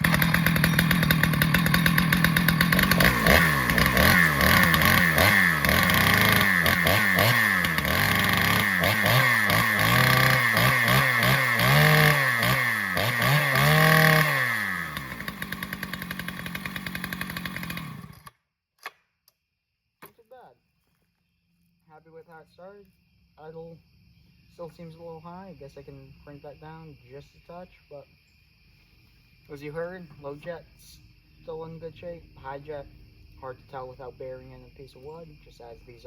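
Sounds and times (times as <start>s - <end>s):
chainsaw engine revving and idling: 0.0s - 18.4s.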